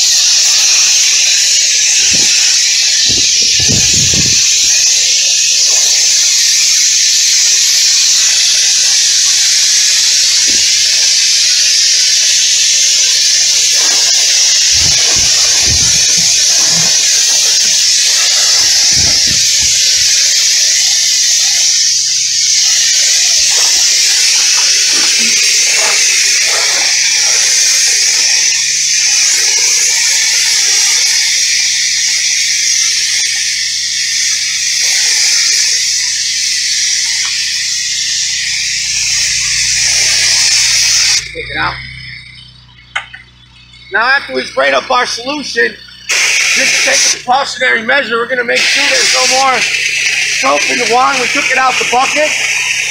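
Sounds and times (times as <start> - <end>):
pressure washer spray hissing: 0.0 - 52.9.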